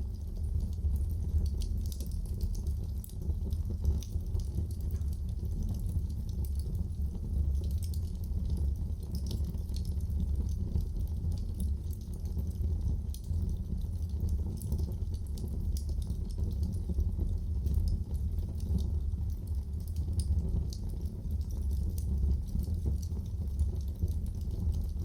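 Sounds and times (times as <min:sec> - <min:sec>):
low rumble of flames: 0:00.0 - 0:25.0
wood fire crackling and popping: 0:00.0 - 0:25.0.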